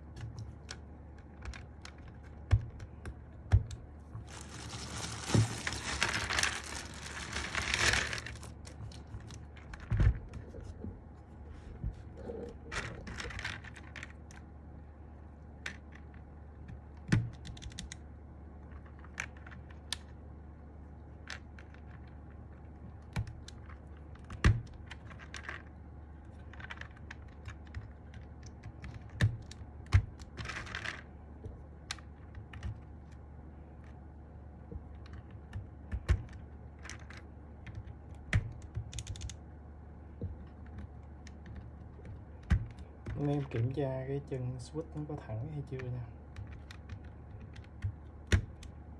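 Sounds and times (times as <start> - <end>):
brief rustling: 4.2 - 14.1.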